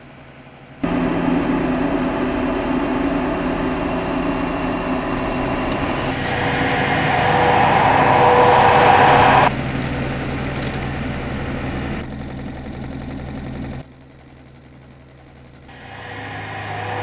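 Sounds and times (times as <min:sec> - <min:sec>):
truck engine running: 0:00.8 - 0:13.8, 0:15.7 - 0:17.0.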